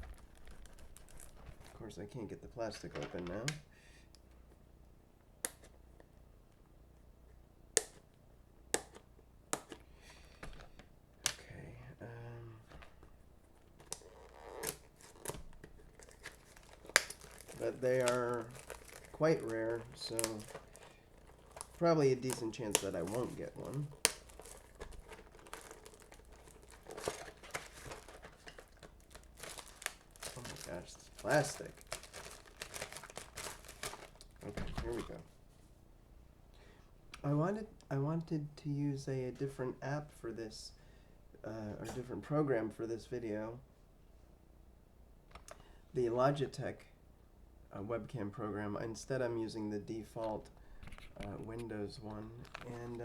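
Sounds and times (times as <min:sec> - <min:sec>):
fingers picking plastic shrink-wrap: 0:00.0 - 0:03.6, 0:12.7 - 0:35.2, 0:51.0 - 0:53.0.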